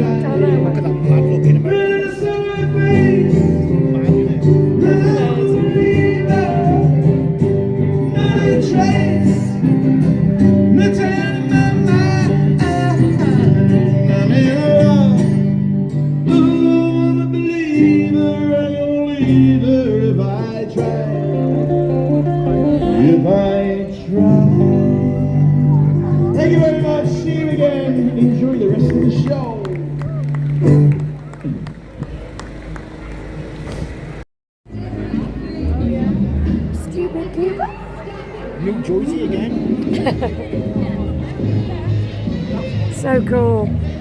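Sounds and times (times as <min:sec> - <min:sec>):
man singing: 0:00.0 - 0:15.6, 0:16.2 - 0:29.7
guitar accompaniment: 0:00.0 - 0:33.2, 0:34.7 - 0:44.0.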